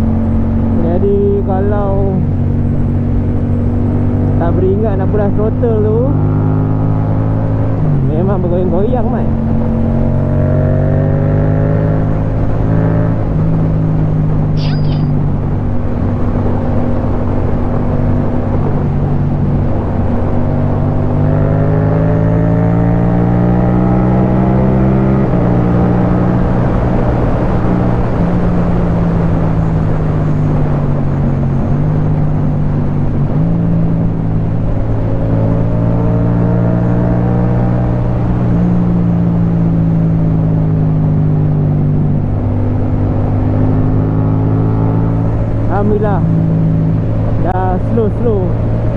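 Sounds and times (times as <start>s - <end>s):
motorcycle engine revving: 5.8s - 19.4s, 20.3s - 31.1s.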